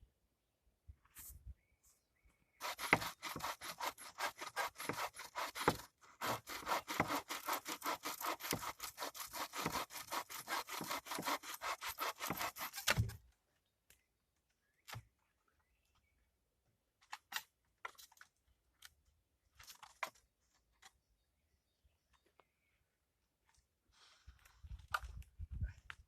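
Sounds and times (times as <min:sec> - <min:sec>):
hand saw cutting wood: 0:02.6 - 0:13.2.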